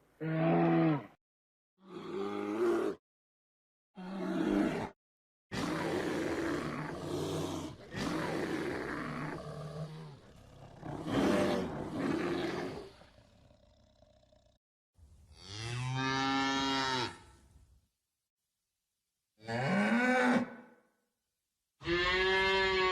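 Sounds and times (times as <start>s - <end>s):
cow mooing: 21.8s - 22.9s.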